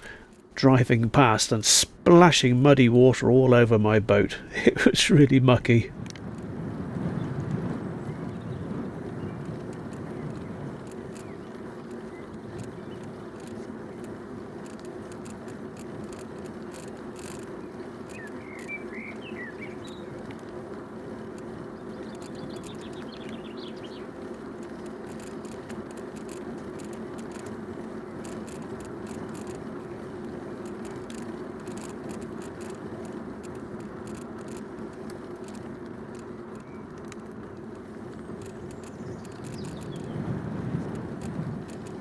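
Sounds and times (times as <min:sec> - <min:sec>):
bicycle tyres rolling: 0:00.0 - 0:42.0
bicycle clicks and rattles: 0:04.5 - 0:42.0
birds singing: 0:10.1 - 0:13.2, 0:17.6 - 0:20.4, 0:21.5 - 0:25.5, 0:36.5 - 0:37.0, 0:38.2 - 0:40.3.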